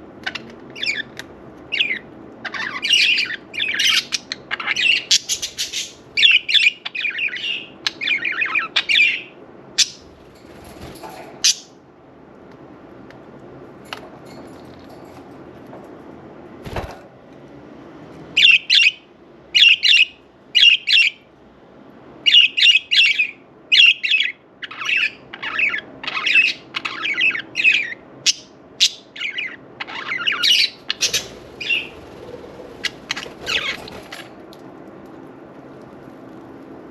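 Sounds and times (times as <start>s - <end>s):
budgerigars chirping and squawking: 0.2s - 10.2s, 19.6s - 21.2s, 22.3s - 34.3s.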